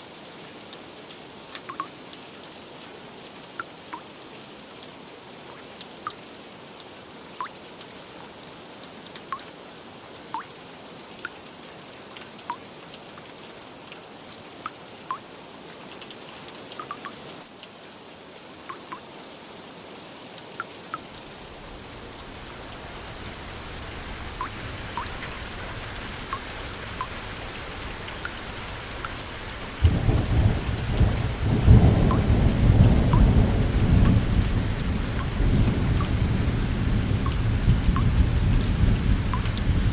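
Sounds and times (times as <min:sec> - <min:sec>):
steady rain falling: 0:00.0 - 0:39.9
water drops plinking: 0:01.7 - 0:01.9, 0:16.8 - 0:17.1, 0:24.4 - 0:25.1
rolling thunder: 0:29.8 - 0:39.9.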